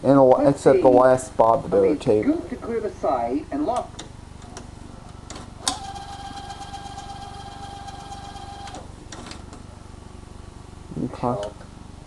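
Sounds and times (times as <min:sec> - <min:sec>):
vcr high whine: 0:00.3 - 0:12.0
vcr click: 0:05.3 - 0:09.6.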